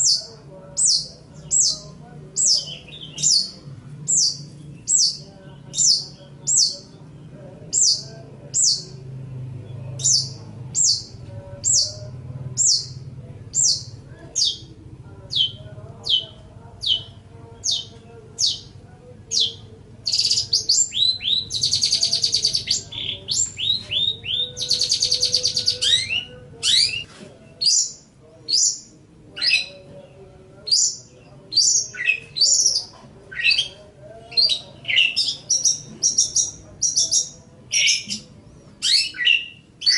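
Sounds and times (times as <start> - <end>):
buzzy bird chatter: 10.0 - 29.9, 30.7 - 39.9.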